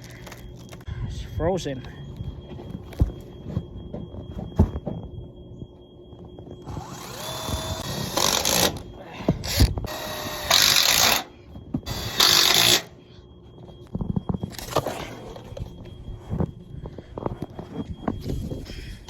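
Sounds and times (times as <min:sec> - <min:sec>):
power tool running: 0:06.6 - 0:11.3, 0:11.9 - 0:12.9.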